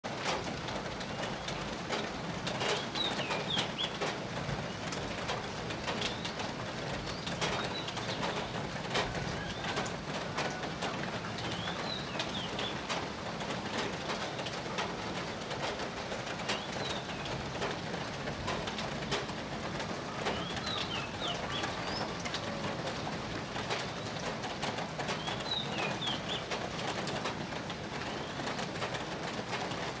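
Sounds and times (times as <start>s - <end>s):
birds calling: 20.2s - 22.3s, 25.1s - 26.5s.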